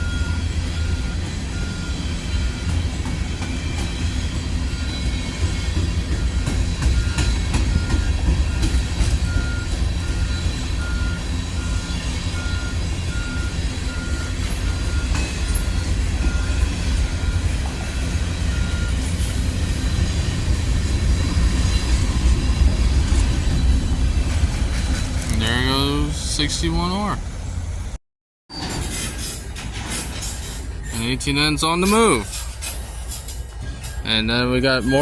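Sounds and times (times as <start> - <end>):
vehicle back-up alarm beeping: 0.0 - 3.0, 6.1 - 19.3
freight train rumbling past: 0.0 - 35.0.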